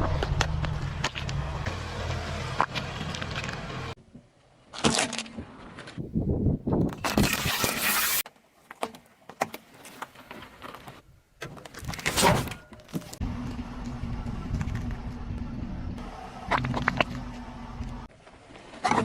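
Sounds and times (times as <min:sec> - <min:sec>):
car engine humming: 0:00.0 - 0:04.0, 0:13.2 - 0:18.1
car tyres crushing objects: 0:00.0 - 0:04.0.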